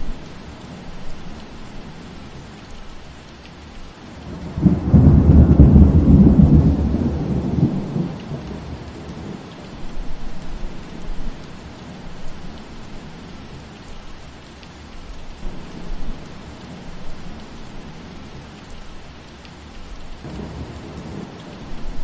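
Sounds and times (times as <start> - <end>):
rain falling through trees: 0.0 - 22.0.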